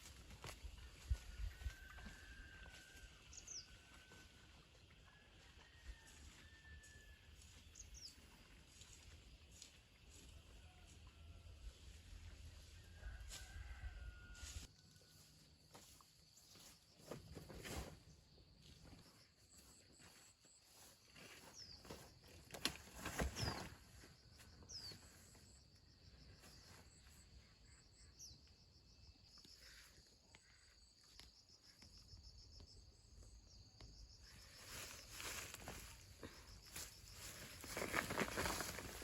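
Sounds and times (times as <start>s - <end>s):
insects chirring: 27.6s - 39.0s.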